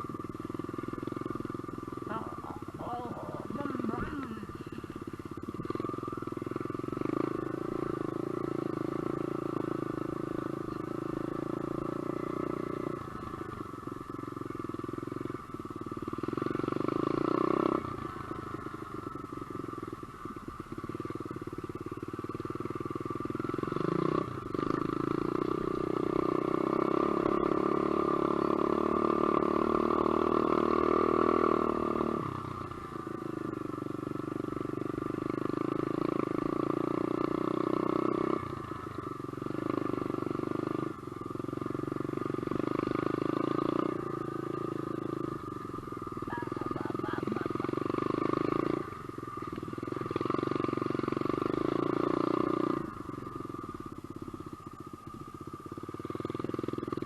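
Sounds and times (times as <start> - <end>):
dirt bike engine revving: 1.2 - 5.0, 23.4 - 33.3, 35.1 - 53.1.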